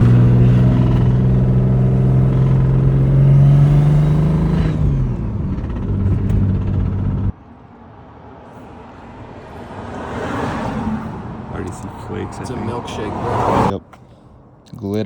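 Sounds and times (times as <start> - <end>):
car engine running: 0.0 - 7.4.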